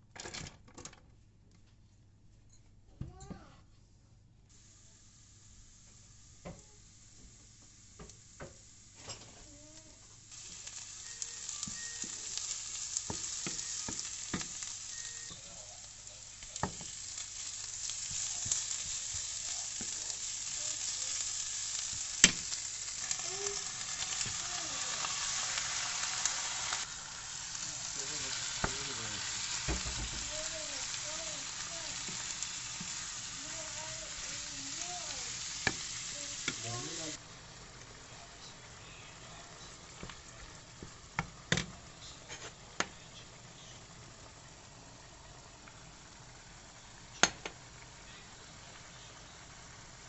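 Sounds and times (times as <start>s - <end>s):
onions sizzling in oil: 4.5s - 50.0s
spatula scraping a pan: 42.2s - 42.6s.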